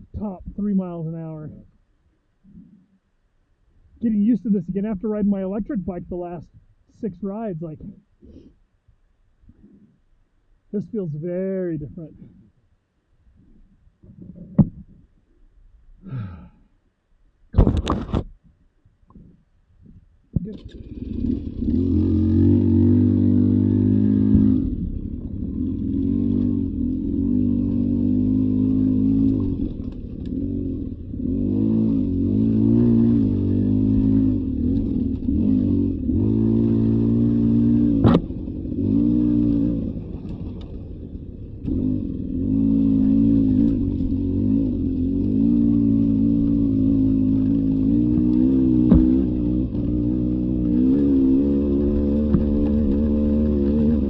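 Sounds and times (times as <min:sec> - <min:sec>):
dirt bike engine revving: 0:20.5 - 0:54.0
sharp knock: 0:38.0 - 0:38.3, 0:48.9 - 0:49.2.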